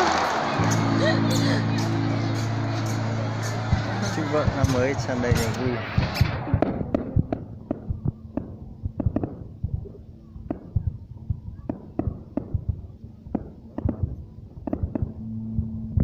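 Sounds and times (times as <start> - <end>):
fireworks bangs: 3.4 - 15.2.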